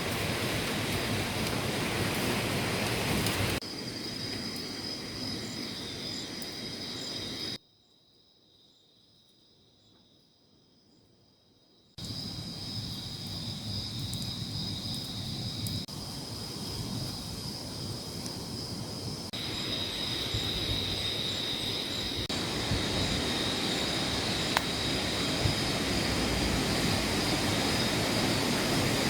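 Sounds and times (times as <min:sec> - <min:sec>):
heavy rain: 0:00.0 - 0:05.2, 0:19.4 - 0:29.0
insects buzzing: 0:00.1 - 0:29.0.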